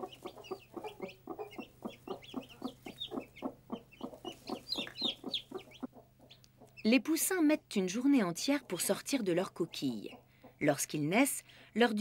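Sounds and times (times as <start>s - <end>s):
chicks peeping: 0.0s - 6.9s
hen clucking: 0.0s - 6.9s.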